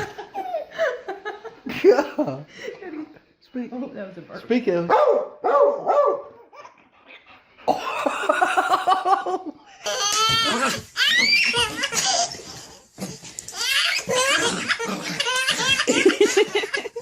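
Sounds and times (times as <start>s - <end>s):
hearty laughter: 7.8s - 9.7s, 14.8s - 17.0s
high-pitched squealing laughs: 10.5s - 12.8s.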